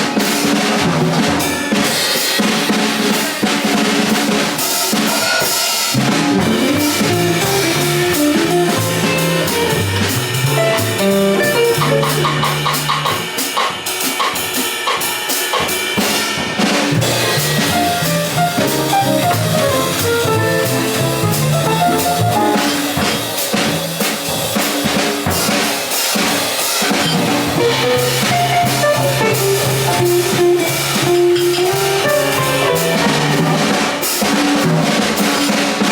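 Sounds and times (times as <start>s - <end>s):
jazz combo playing: 0.0s - 14.5s, 15.7s - 35.9s
drum kit: 0.0s - 35.9s
bass line: 6.0s - 13.3s, 16.9s - 22.7s, 27.2s - 33.7s.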